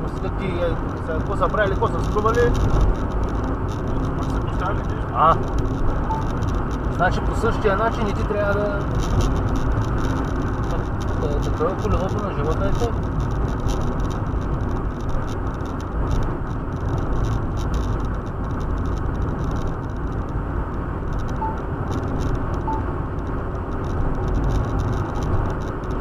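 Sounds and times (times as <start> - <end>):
car road and engine noise: 0.0 - 26.0.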